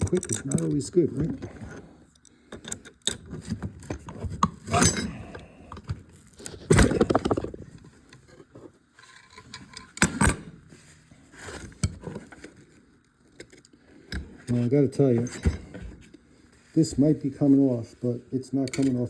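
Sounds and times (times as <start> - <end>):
metal tools clinking on pump: 0.0 - 1.3, 18.6 - 19.0.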